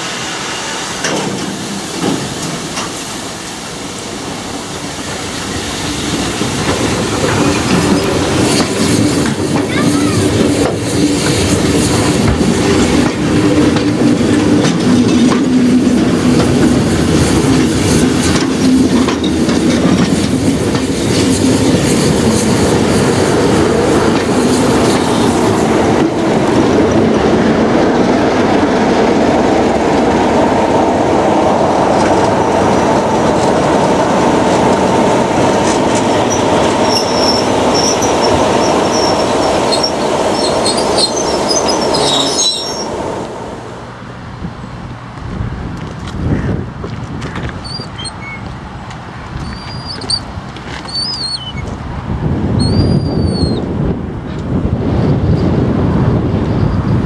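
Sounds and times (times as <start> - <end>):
train wheels clattering on rails: 0.0 - 57.0
wheel squeal: 36.2 - 43.0, 47.4 - 48.5, 49.3 - 51.8, 52.6 - 53.7.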